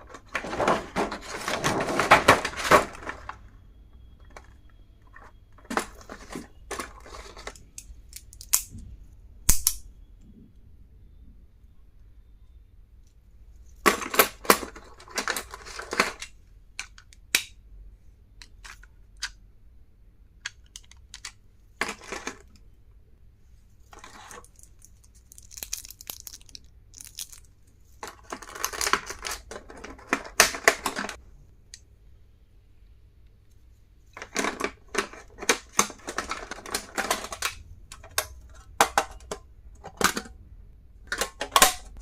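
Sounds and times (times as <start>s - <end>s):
packaging rustling and clicking: 0.0s - 3.4s.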